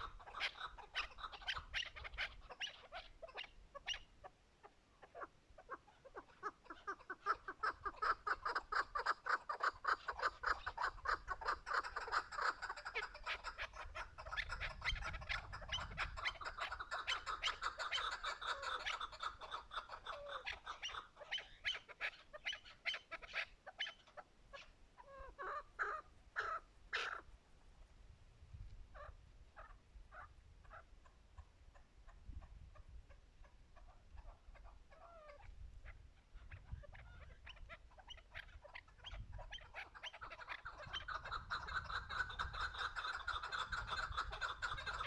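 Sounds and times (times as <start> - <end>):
partridge clucking calls: 0.0 - 27.3, 28.9 - 45.0.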